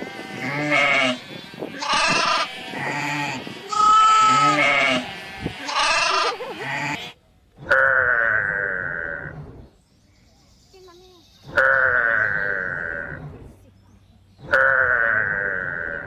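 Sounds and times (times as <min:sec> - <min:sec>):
goats bleating: 0:00.0 - 0:07.8.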